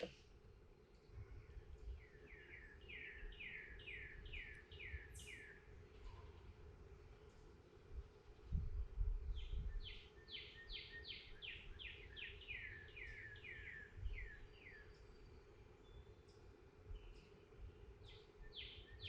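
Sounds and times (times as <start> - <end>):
songbird singing downslurred notes: 1.5 - 5.7, 9.4 - 16.4, 17.0 - 19.0.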